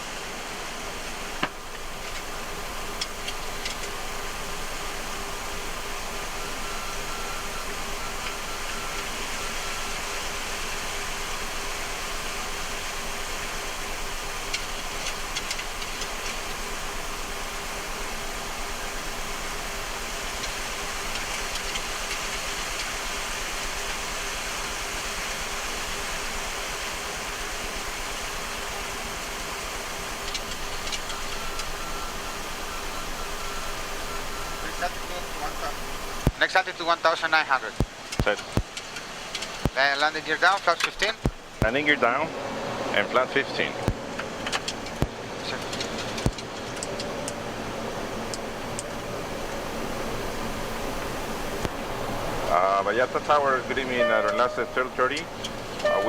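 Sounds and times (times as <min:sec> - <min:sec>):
airflow and air-conditioning hiss: 0:00.0 - 0:56.0
faint steady hum: 0:00.0 - 0:56.0
faint broken high tone: 0:31.1 - 0:35.9, 0:53.5 - 0:56.0
rush of air around cockpit: 0:37.1 - 0:56.0.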